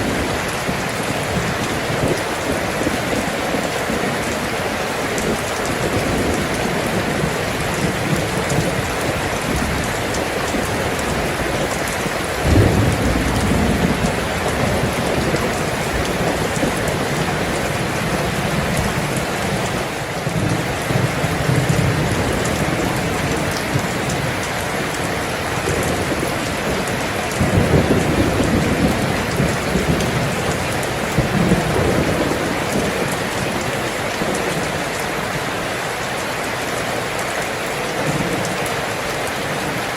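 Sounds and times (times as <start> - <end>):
thunder rumbling: 0.0 - 35.5
heavy rain falling: 0.0 - 39.9.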